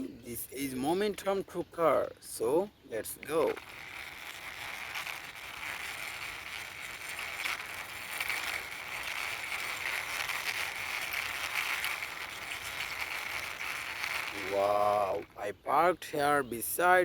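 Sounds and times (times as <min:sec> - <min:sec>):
toy truck wheels rolling: 0:02.3 - 0:15.5.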